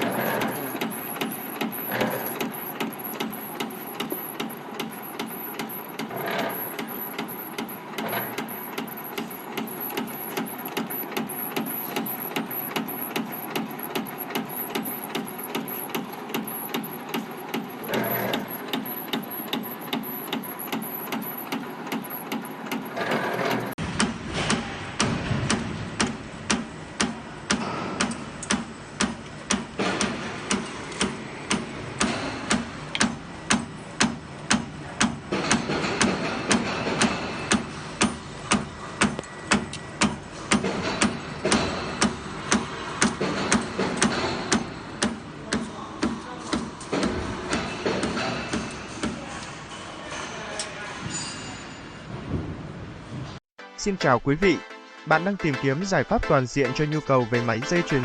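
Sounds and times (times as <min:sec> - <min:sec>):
spring coiling machine rattling: 0:00.0 - 0:23.8.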